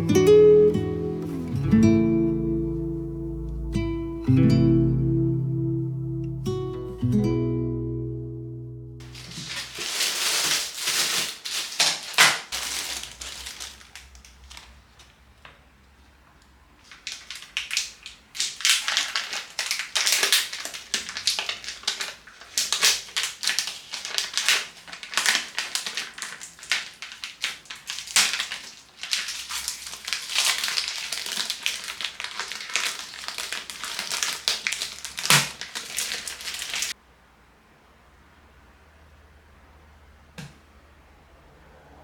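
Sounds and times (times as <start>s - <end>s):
crunching and crackling: 9.0s - 15.2s, 16.8s - 37.0s.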